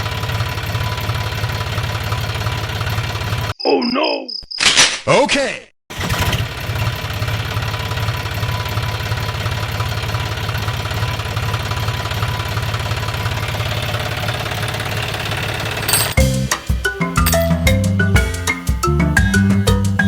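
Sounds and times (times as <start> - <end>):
small engine idling: 0.0 - 3.5, 6.0 - 16.3.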